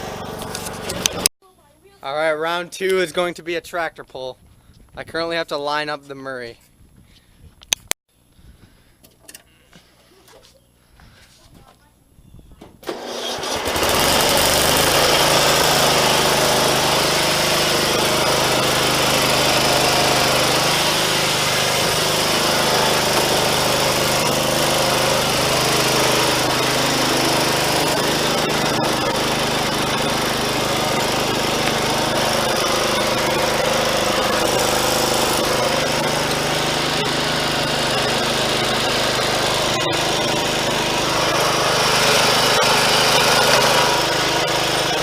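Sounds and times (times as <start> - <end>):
lawn mower engine drone: 0.0 - 1.3, 12.9 - 45.0.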